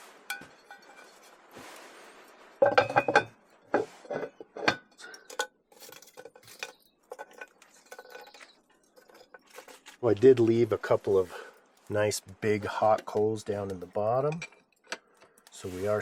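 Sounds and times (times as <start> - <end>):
cast iron cookware clanking: 0.3 - 1.2, 2.6 - 9.9, 12.4 - 15.4.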